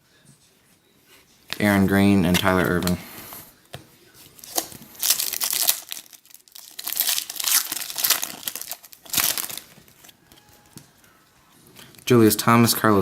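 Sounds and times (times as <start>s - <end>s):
wrapper tearing and crinkling: 4.4s - 10.2s.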